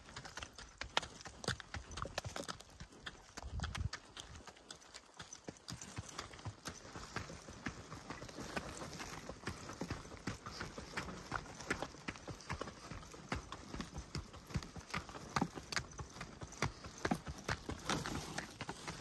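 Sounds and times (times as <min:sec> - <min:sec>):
footsteps on forest track: 0:00.0 - 0:19.0.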